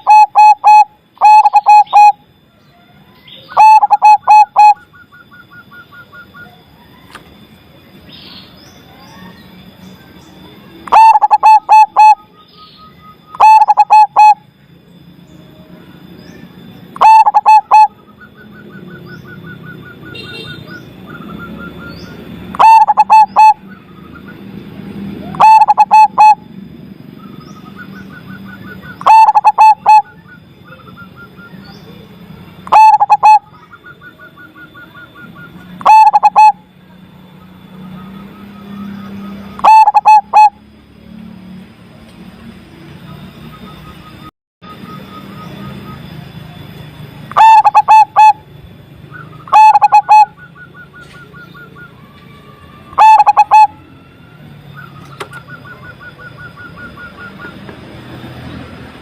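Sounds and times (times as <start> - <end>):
dove cooing: 0.0 - 2.2, 3.5 - 6.6, 10.8 - 12.4, 13.3 - 14.5, 17.0 - 18.1, 21.0 - 23.8, 25.2 - 26.5, 27.7 - 30.9, 32.6 - 33.7, 34.6 - 36.7, 39.6 - 40.6, 47.3 - 48.5, 49.1 - 52.0, 53.0 - 54.0
bird trills: 0.0 - 40.6, 43.1 - 59.0.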